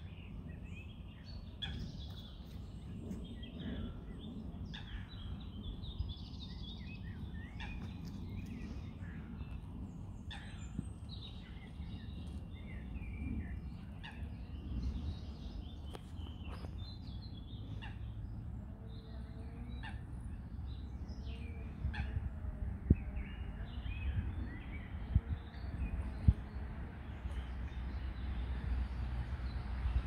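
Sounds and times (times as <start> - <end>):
birds chirping and calling: 0.0 - 28.5
wind rumble on microphone: 0.0 - 30.0.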